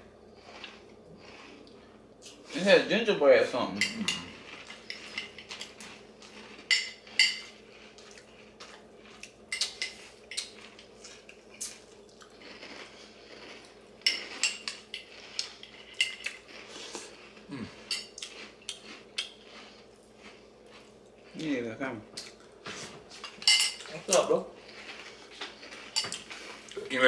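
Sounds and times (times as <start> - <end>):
spoon clinking against bowl: 6.7 - 7.5.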